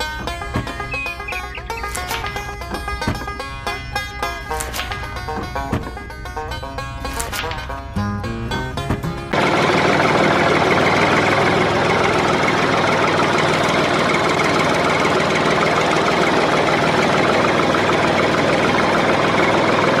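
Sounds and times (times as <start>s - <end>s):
music: 0.0s - 9.4s
motor knocking steadily: 8.9s - 20.0s.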